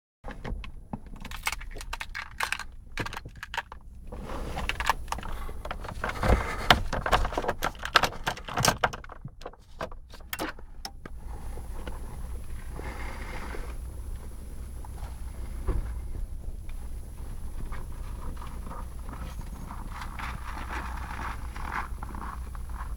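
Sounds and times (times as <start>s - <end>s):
key clicking in ignition: 0.6s - 3.9s, 4.6s - 11.1s
car keys jangling: 1.1s - 3.9s, 4.6s - 10.9s
steady low hiss: 9.6s - 22.9s.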